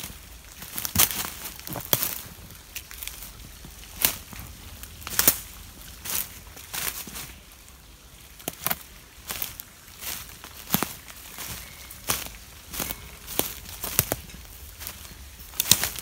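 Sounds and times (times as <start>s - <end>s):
footsteps crunching on dry twigs: 0.0s - 16.0s.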